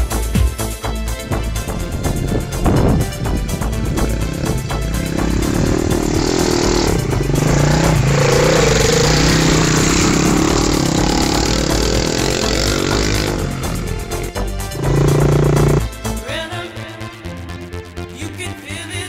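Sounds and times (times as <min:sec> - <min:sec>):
background music: 0:00.0 - 0:19.0
motorbike engine running: 0:01.2 - 0:16.0.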